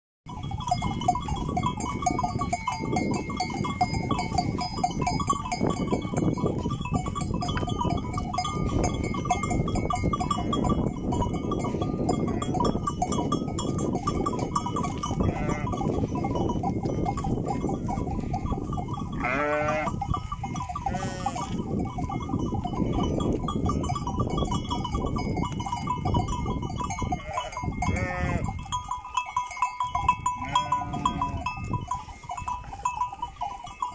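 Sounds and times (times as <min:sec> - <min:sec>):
livestock bells clanking: 0:00.3 - 0:33.9
animals bleating: 0:15.1 - 0:16.0, 0:19.2 - 0:20.0, 0:20.8 - 0:21.7, 0:27.1 - 0:28.6, 0:30.3 - 0:31.5.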